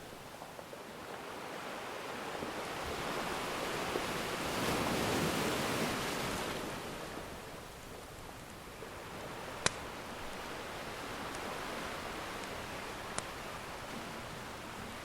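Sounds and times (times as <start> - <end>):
ocean waves breaking: 0.0 - 15.0.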